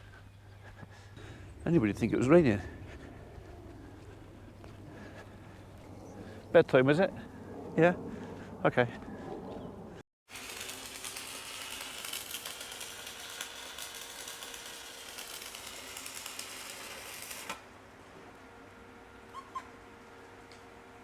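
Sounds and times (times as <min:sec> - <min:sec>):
arc welding crackle: 0:10.3 - 0:17.7.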